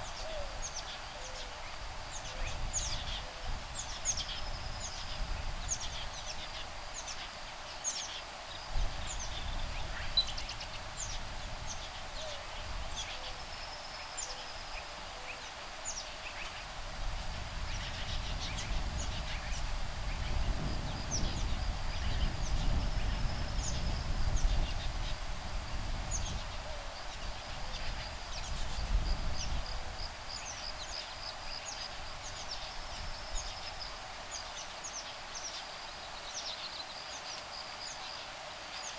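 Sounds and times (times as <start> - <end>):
low wind rumble: 16.7 - 34.6.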